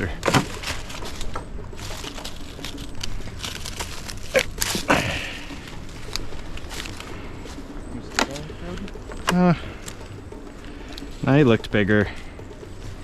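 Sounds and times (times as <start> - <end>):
rustling through leaf litter: 0.0 - 10.0.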